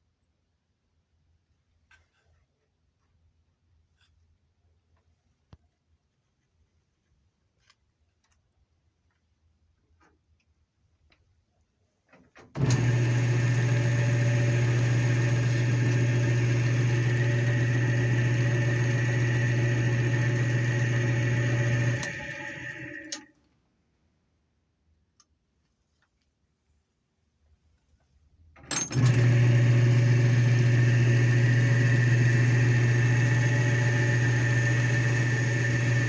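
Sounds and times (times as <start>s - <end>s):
metal lathe motor humming: 12.6s - 23.2s, 28.9s - 36.0s
lathe winding down: 12.6s - 23.3s, 28.9s - 36.0s.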